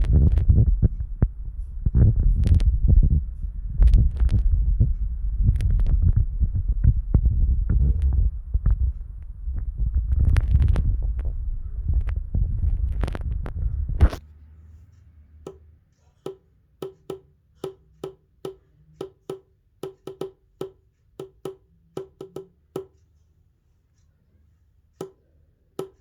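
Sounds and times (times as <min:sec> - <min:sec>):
low rumbling with clicks: 0:00.0 - 0:15.6.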